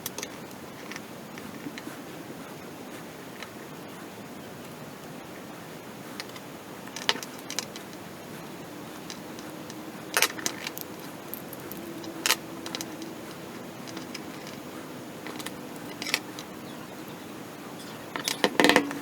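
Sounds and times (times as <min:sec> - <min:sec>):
small hard parts clicking: 0:00.0 - 0:02.0, 0:06.1 - 0:19.0
steady hiss: 0:00.0 - 0:19.0.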